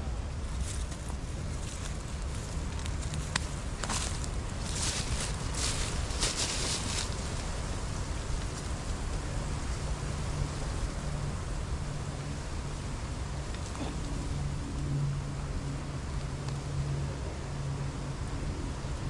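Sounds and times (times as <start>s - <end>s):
rustling: 0.5s - 9.0s.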